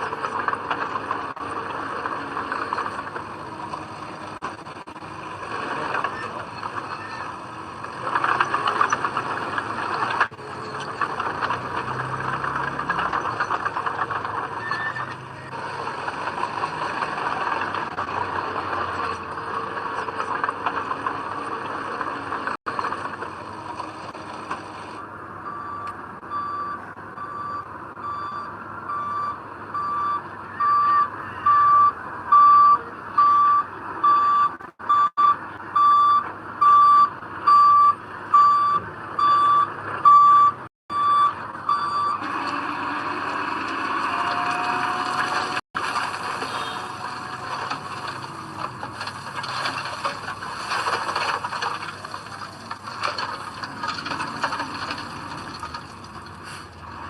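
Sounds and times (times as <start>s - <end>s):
heavy diesel machinery running: 0.0s - 57.0s
reversing alarm beeping: 25.4s - 42.3s.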